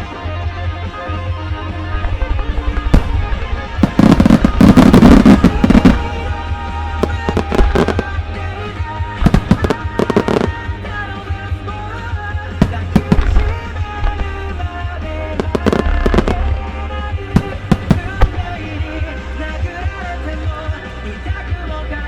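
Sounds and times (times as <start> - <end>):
music soundtrack: 0.0 - 22.0
firework shells bursting and crackling: 1.9 - 10.8, 12.4 - 20.0.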